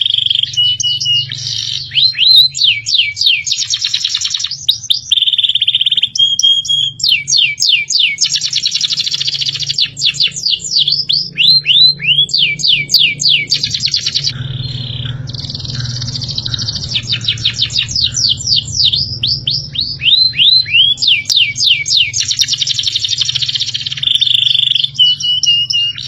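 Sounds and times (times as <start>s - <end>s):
songbird trills and whistles: 0.0s - 26.0s
steady low hum: 8.8s - 26.0s.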